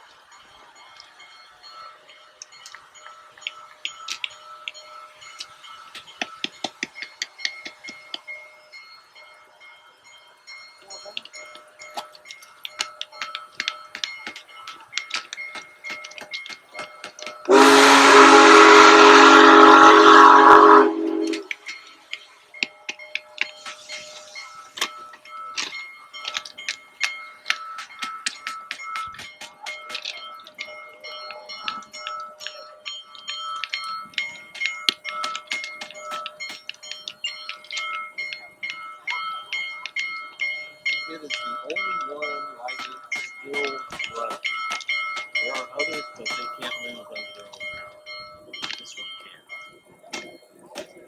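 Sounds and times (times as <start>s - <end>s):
small chime-like tones: 0.0s - 17.8s, 19.2s - 51.0s
steam hissing: 0.0s - 51.0s
steam whistle blast: 17.5s - 21.6s.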